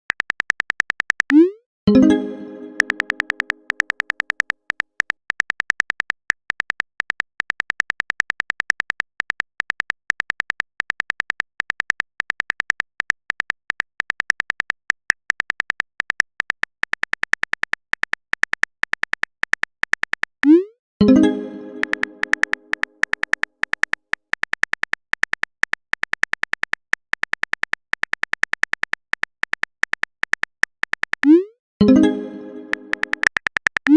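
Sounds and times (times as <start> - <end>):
phone keyboard click beeps: 0.1 - 8.1, 21.7 - 32.0, 32.6 - 33.9.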